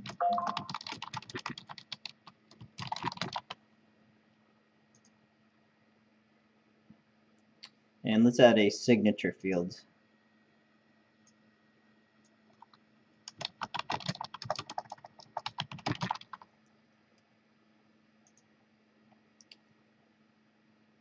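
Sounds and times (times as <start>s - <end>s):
typing on computer keyboard: 0.0s - 3.6s, 12.5s - 16.5s.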